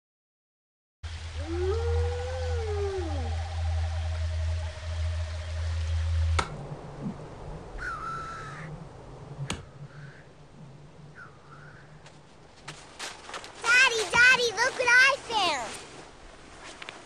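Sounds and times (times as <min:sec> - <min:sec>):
loud low drone: 0:01.0 - 0:12.0
hoarse bird call: 0:07.8 - 0:08.8, 0:11.1 - 0:12.0.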